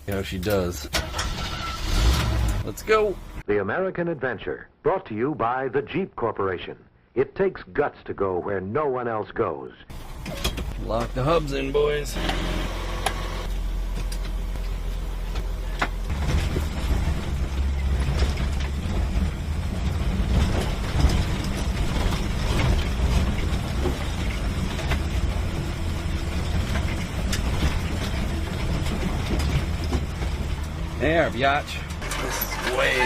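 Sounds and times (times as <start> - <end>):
car engine running: 9.9 - 33.0.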